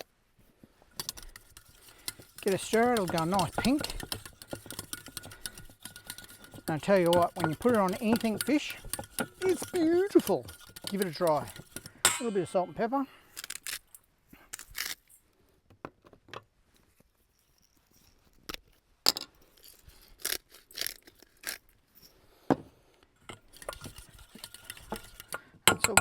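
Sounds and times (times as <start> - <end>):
kitchen utensils clicking and scraping: 0.9 - 14.0, 23.2 - 26.0.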